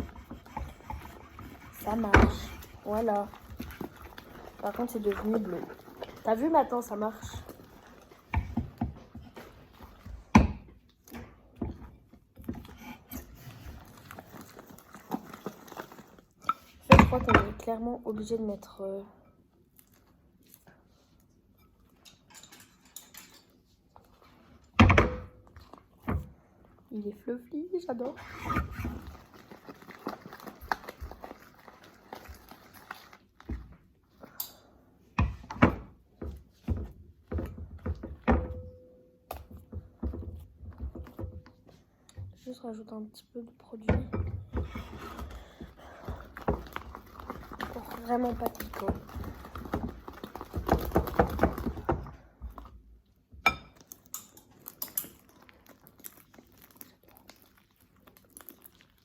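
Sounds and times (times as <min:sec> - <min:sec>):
rustling handling sounds: 0:00.0 - 0:10.3, 0:11.7 - 0:18.5, 0:26.7 - 0:34.7, 0:44.6 - 0:52.9.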